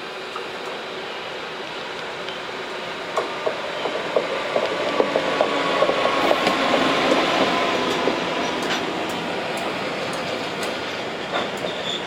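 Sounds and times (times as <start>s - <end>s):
train rushing past: 2.0s - 12.0s
train wheels squealing on rails: 3.4s - 12.0s.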